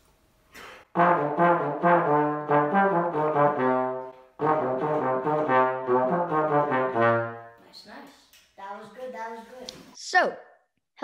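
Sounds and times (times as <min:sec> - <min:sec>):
trombone playing melody: 0:00.9 - 0:07.6.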